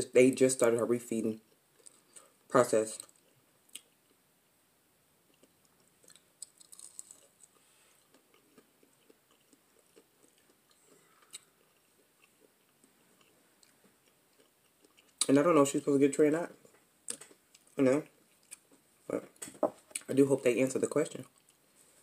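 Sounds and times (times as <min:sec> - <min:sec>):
chewing with soft crunches: 0:05.2 - 0:15.3, 0:16.6 - 0:18.9, 0:21.1 - 0:22.0.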